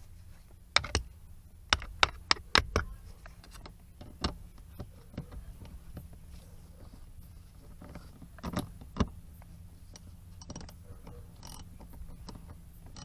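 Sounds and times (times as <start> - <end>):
tools clicking and knocking: 0.8 - 1.1, 1.7 - 6.1, 7.7 - 9.2, 9.9 - 13.0.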